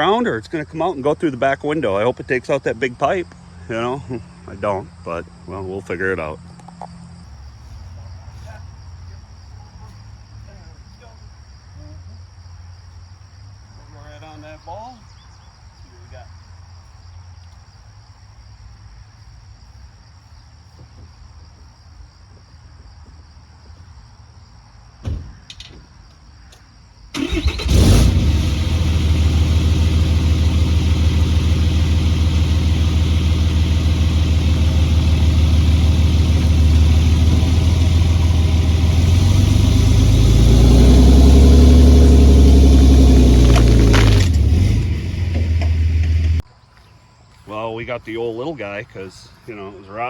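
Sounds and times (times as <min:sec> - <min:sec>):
single thump: 0:25.0 - 0:25.9
pickup diesel engine running: 0:27.2 - 0:46.4.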